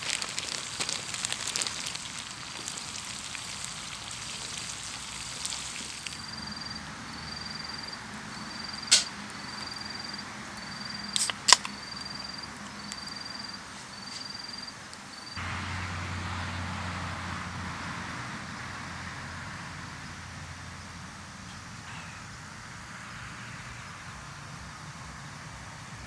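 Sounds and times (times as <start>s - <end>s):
hiss: 0.0s - 6.3s, 8.8s - 9.2s
insect chirping: 0.0s - 15.4s
sharp snaps: 8.8s - 9.2s, 11.2s - 11.8s.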